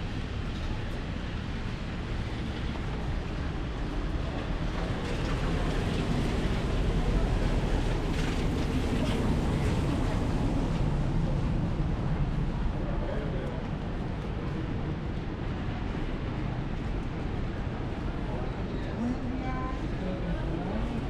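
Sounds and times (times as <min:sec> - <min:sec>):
rain on an umbrella: 0:00.1 - 0:11.2.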